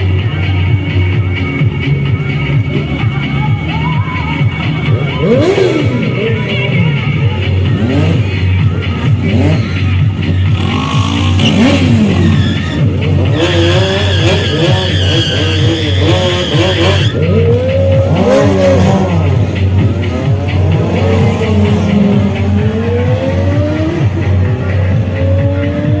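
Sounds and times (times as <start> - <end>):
motorcycle engines revving: 0.0 - 26.0
high squeal: 11.2 - 17.3.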